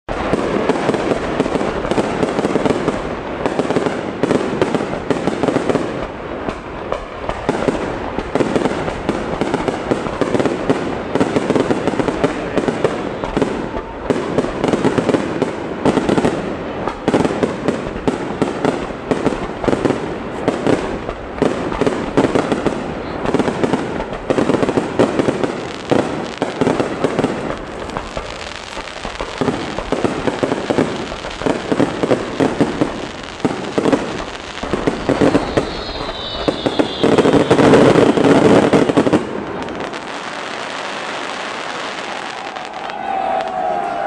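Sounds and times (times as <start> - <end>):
fireworks bangs: 0.1 - 44.0
fireworks crackling and popping: 0.1 - 44.0.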